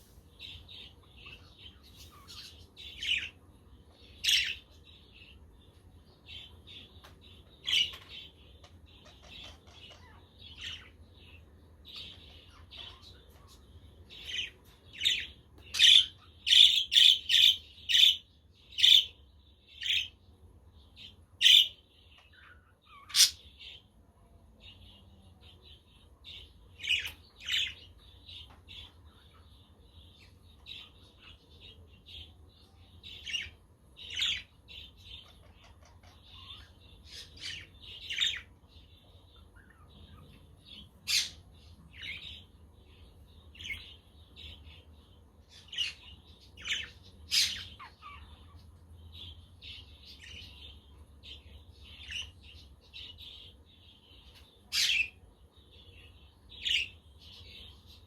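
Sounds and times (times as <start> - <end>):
budgerigars chattering and chirping: 4.0 - 5.4, 6.3 - 20.2, 21.0 - 23.8, 26.3 - 58.0.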